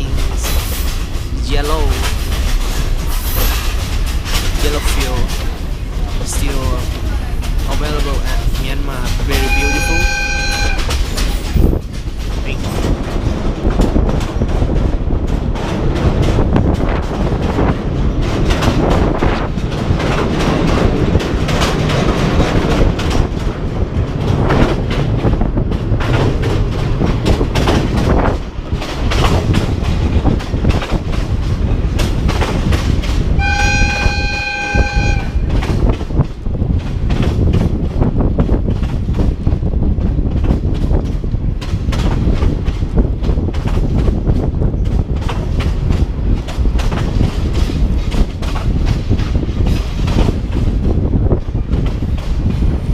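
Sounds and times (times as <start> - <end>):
train wheels rumbling and clattering: 0.0 - 52.9
train horn blast: 9.4 - 10.9, 33.4 - 35.6.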